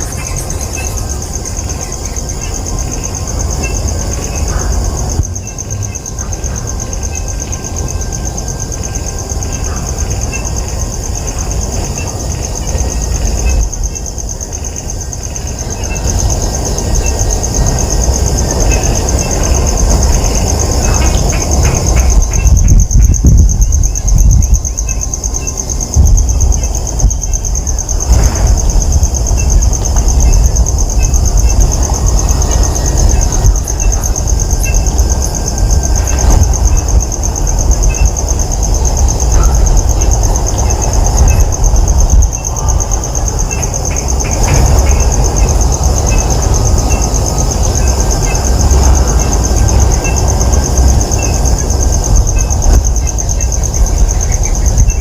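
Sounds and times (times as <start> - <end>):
high-pitched insect chorus: 0.0 - 55.0
loud low rumble: 15.4 - 55.0.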